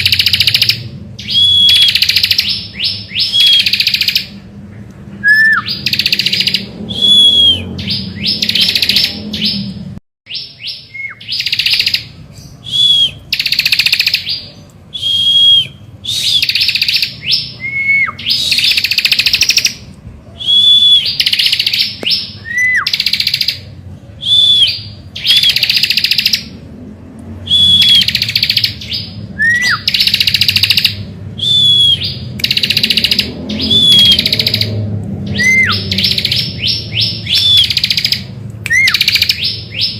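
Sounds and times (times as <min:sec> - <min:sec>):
bird singing buzzy trills: 0:00.0 - 0:04.5, 0:05.1 - 0:26.7, 0:27.4 - 0:39.9.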